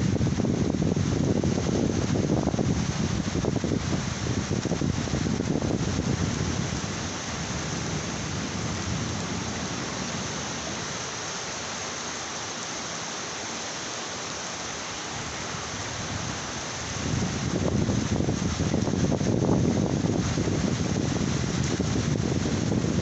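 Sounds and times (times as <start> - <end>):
thunder rumbling: 0.0 - 11.0
heavy rain hissing: 0.0 - 23.0.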